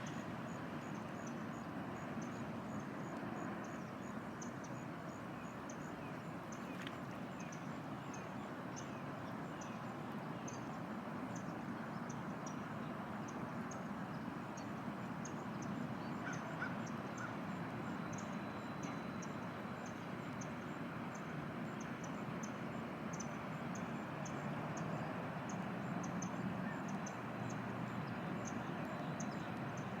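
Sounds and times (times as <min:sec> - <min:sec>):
ibis croaking calls: 0:16.2 - 0:17.3.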